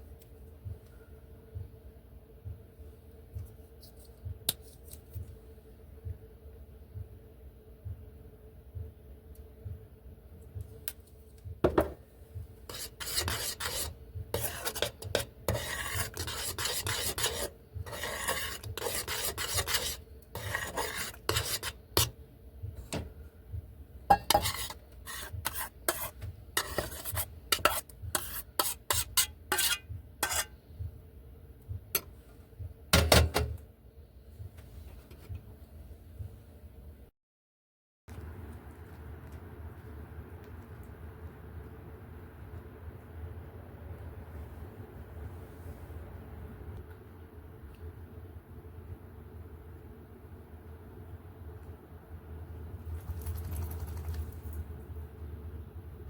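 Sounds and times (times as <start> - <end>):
rasping scraping strokes: 12.7 - 22.1, 24.3 - 30.5.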